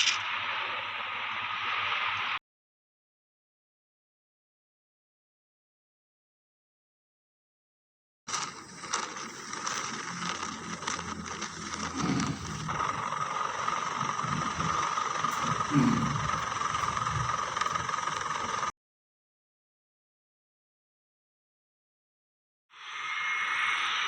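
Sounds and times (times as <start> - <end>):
helicopter turbine whine: 8.3 - 18.7.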